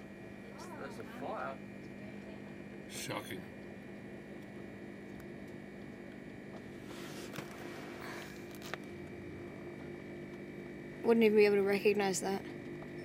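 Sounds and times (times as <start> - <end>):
train carriage hum: 6.5 - 9.7.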